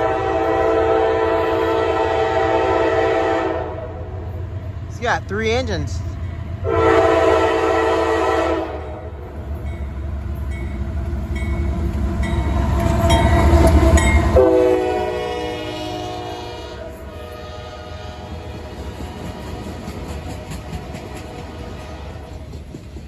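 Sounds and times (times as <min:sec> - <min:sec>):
train horn blast: 0:00.0 - 0:04.0, 0:06.6 - 0:09.1, 0:14.3 - 0:18.7
locomotive engine and wheel rumble: 0:09.0 - 0:14.5.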